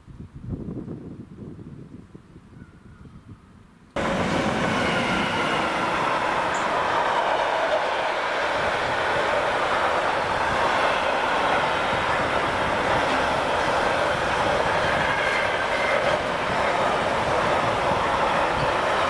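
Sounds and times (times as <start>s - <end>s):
freight wagons rolling on rails: 4.0s - 19.0s.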